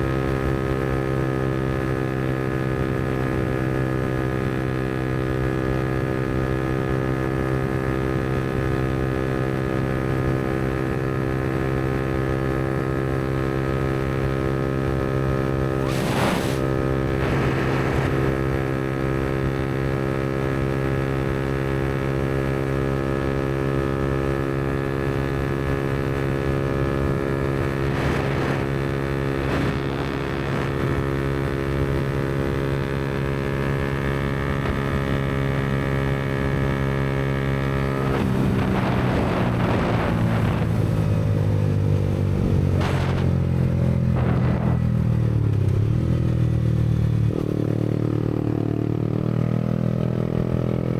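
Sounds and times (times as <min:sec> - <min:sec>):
motorcycle engine cruising: 0:00.0 - 0:50.9
brief rushes of noise: 0:15.8 - 0:18.2.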